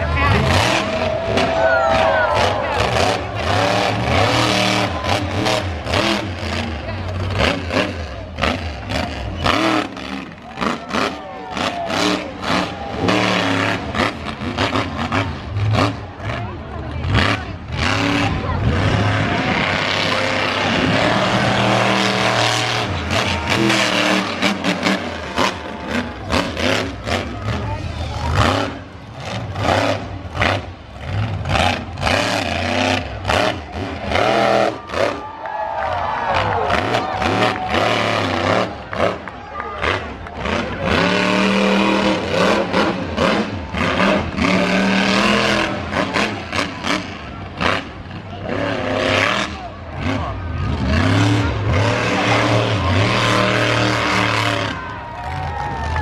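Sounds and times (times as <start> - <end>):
monster truck engine revving: 0.0 - 56.0.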